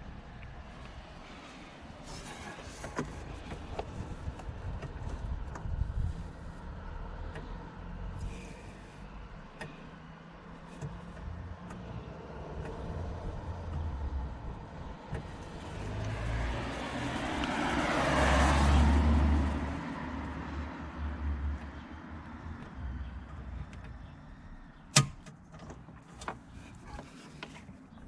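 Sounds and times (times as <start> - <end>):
car passing by: 11.7 - 22.0.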